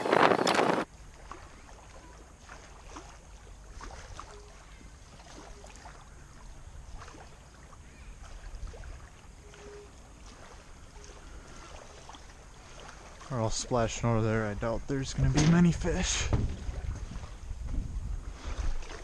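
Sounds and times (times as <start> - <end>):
wind rumble on microphone: 0.0 - 1.4, 14.5 - 19.0
small water splashes: 0.0 - 14.0, 16.3 - 19.0.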